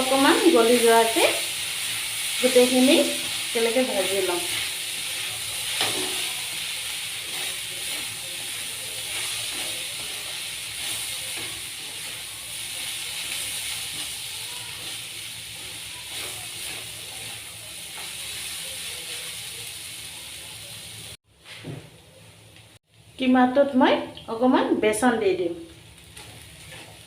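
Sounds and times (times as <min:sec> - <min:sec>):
meat sizzling in oil: 0:00.0 - 0:21.2.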